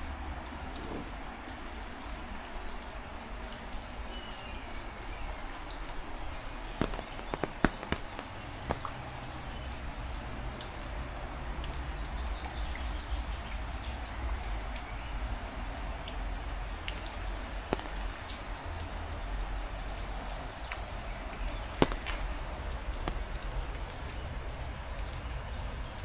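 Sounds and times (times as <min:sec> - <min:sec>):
heavy rain falling: 0:00.0 - 0:26.0
raindrops ticking: 0:00.0 - 0:26.0
sharp knocks: 0:06.8 - 0:09.1, 0:17.7 - 0:18.4, 0:21.4 - 0:22.4.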